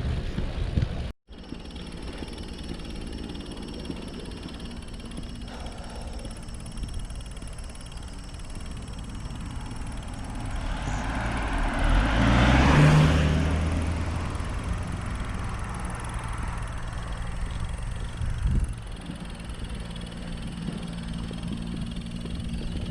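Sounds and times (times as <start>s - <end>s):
vehicle driving past: 9.4s - 19.3s.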